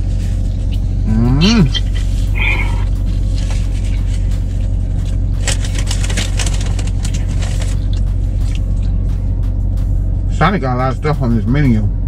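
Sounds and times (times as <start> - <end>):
car engine idling: 0.0 - 12.0
chewing: 1.4 - 8.9
foil and paper wrapper rustling: 1.8 - 8.6.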